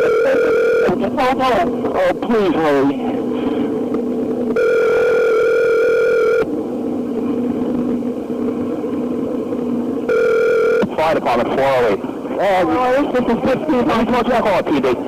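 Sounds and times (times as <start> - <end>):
telephone ringback tone: 0.0 - 1.0, 4.6 - 6.5, 10.1 - 10.9
low hum on phone line: 0.0 - 15.0.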